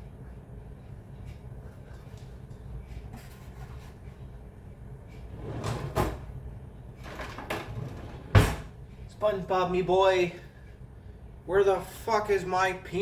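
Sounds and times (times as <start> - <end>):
steady low hum: 0.0 - 13.0
cupboard door opening and shutting: 5.3 - 6.4, 7.0 - 8.8.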